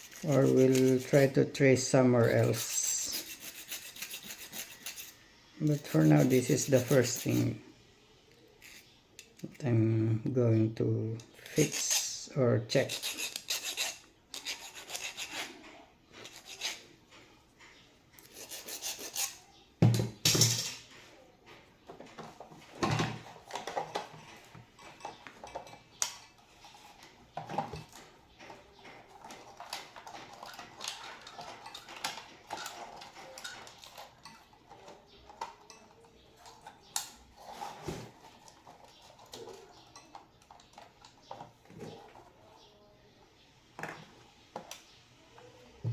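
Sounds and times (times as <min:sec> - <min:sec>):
hand file scraping metal: 0:00.0 - 0:07.6, 0:11.4 - 0:16.9, 0:18.2 - 0:19.5.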